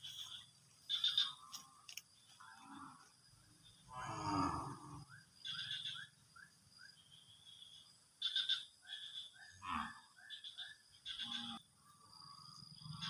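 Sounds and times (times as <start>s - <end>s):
short chirping animal calls: 0.0s - 1.4s, 4.9s - 6.5s, 8.2s - 9.6s, 10.2s - 11.6s.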